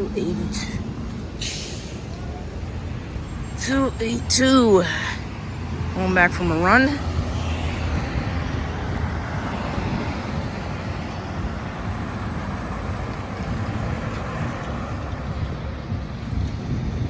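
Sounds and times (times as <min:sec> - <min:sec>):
diesel engine running: 0:00.0 - 0:17.0
road noise: 0:00.0 - 0:17.0.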